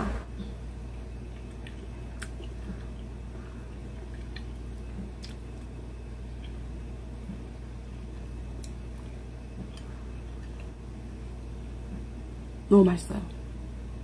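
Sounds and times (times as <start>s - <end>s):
steady low hum: 0.0s - 14.0s
person chewing wet food: 1.1s - 10.8s.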